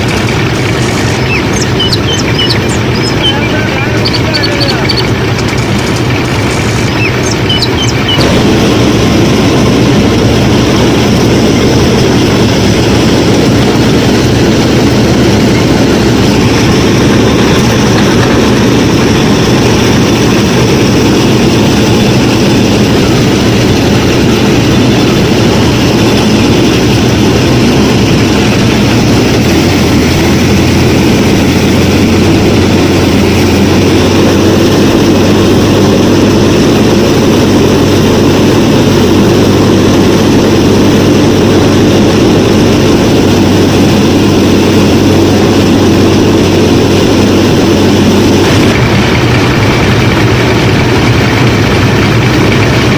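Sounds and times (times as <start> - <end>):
harvester motor running: 0.0 - 52.9
bird chirps: 1.0 - 5.2, 6.8 - 8.2.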